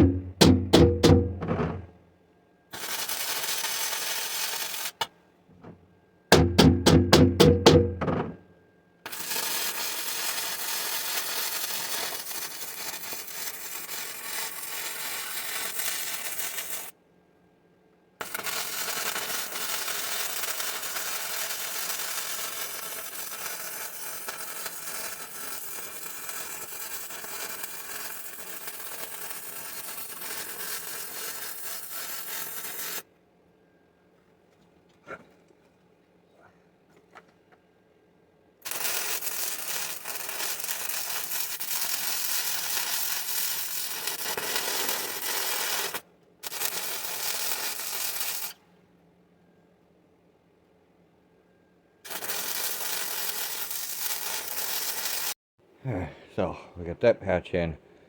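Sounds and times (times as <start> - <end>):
arc welding crackle and hiss: 2.7 - 5.1, 9.0 - 17.0, 18.2 - 33.1, 38.6 - 48.6, 52.0 - 55.4.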